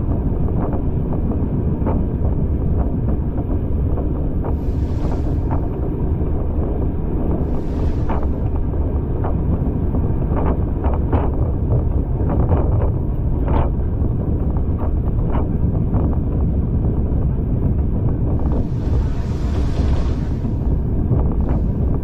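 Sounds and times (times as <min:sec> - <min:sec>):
wind buffeting microphone: 0:00.0 - 0:22.0
train rumbling: 0:00.3 - 0:22.0.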